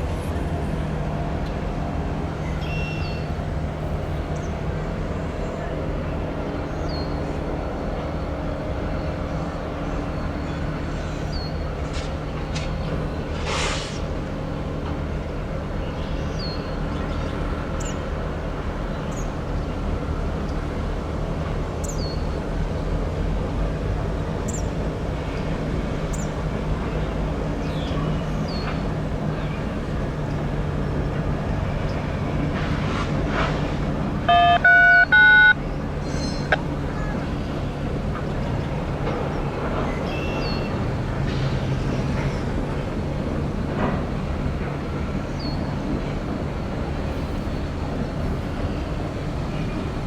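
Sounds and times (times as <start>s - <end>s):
diesel locomotive engine droning: 0.0s - 50.0s
loud multi-note train horn: 34.3s - 35.6s.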